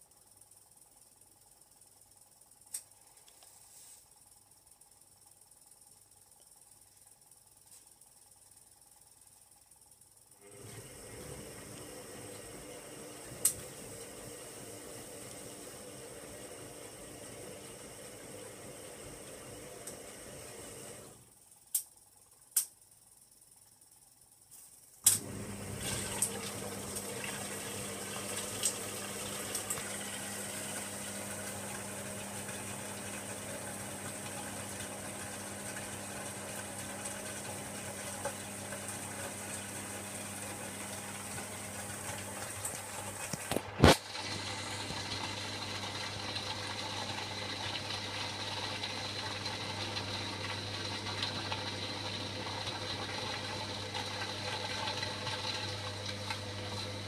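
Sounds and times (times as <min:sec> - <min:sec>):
washing machine low hum: 0:00.0 - 0:22.4, 0:24.8 - 0:57.0
water rushing into washing machine: 0:10.4 - 0:21.2, 0:25.1 - 0:57.0.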